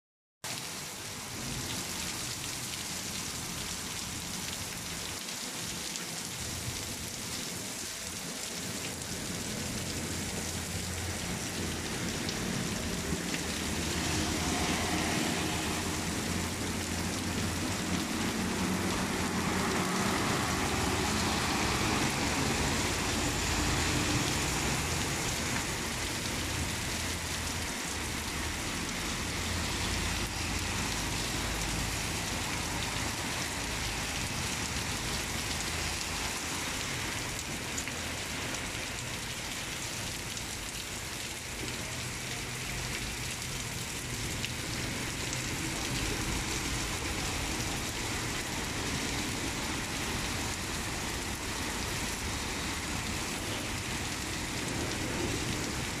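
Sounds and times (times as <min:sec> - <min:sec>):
heavy rain on pavement: 0:00.4 - 0:56.0
car driving on wet street: 0:00.5 - 0:56.0.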